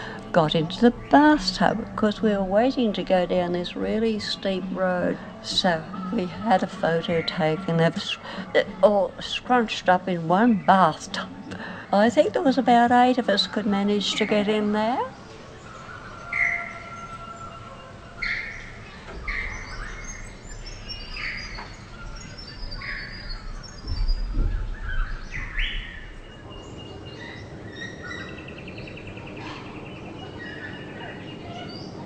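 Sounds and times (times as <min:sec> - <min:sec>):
birds calling and chirping: 0:00.0 - 0:32.0
bird trill: 0:13.3 - 0:32.0.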